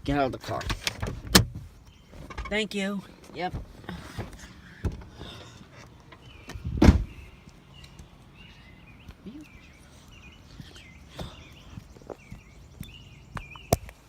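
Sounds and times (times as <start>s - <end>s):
car door thump: 1.0s - 1.7s, 6.5s - 7.2s
small birds chirping: 1.5s - 14.0s.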